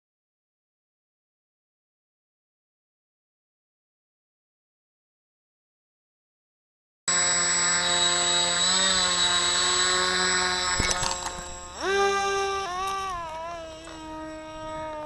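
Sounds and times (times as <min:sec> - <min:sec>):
electric motor and propeller whine: 0:07.1 - 0:15.0.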